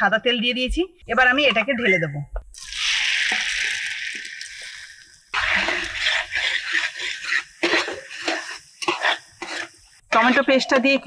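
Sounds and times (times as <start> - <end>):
hot oil sizzling in a pan: 2.6 - 11.0
spatula stirring and scraping pan: 2.6 - 11.0.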